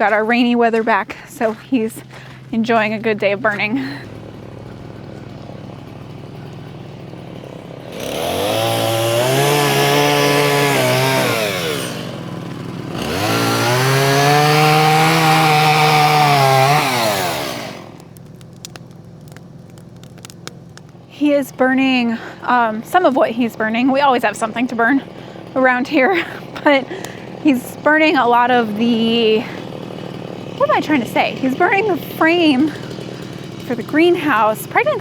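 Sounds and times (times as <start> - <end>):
small gas engine revving: 1.4 - 35.0.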